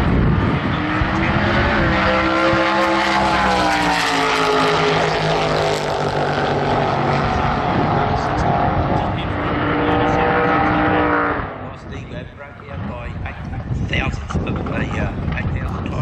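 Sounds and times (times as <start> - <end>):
racing car engine revving high: 0.0 - 11.8.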